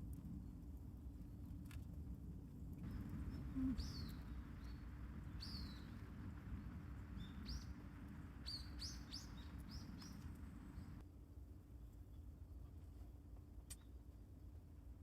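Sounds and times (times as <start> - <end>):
steady low rumble: 0.0 - 11.0
small bird chirping: 2.8 - 11.0.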